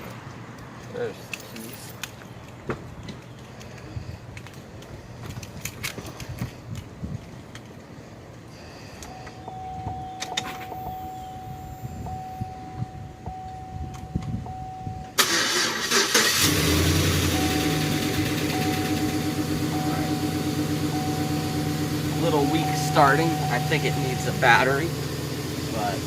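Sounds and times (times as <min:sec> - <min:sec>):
engine starter cranking: 0:15.2 - 0:19.2
car engine idling: 0:15.2 - 0:26.0.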